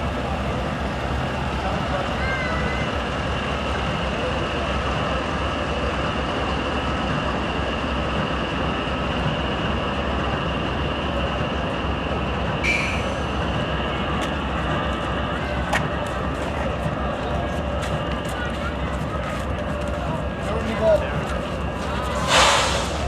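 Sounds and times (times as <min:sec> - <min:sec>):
train rumbling along track: 0:00.0 - 0:23.0
high wheel squeal: 0:12.6 - 0:14.0.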